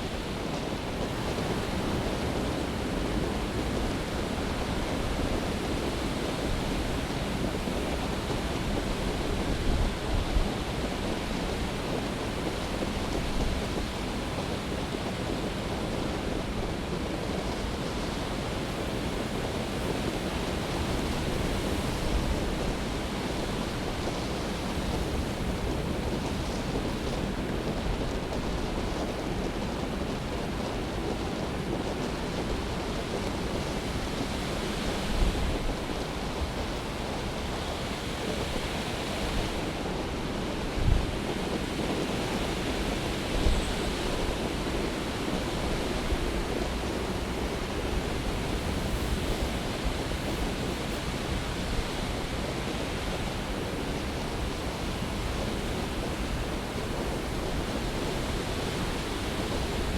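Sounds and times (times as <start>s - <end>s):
wind on microphone: 0.0s - 59.9s
storm surf crashing: 16.2s - 59.9s.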